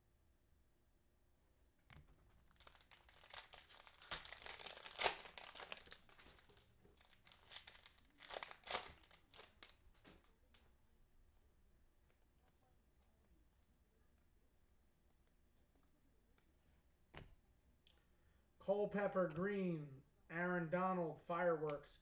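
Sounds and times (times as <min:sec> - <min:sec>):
cellophane wrapper crinkling: 0:02.1 - 0:10.6.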